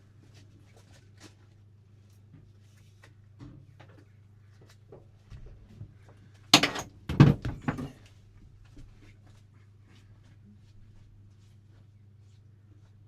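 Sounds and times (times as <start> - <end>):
loud knocks and clatter: 6.6 - 7.9.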